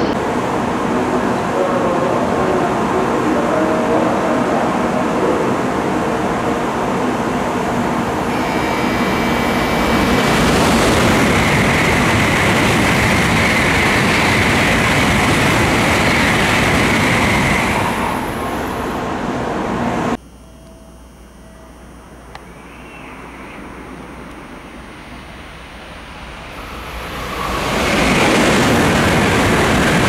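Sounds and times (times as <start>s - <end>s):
high-speed train passing: 0.0s - 20.2s, 23.2s - 30.0s
high whine: 6.1s - 30.0s.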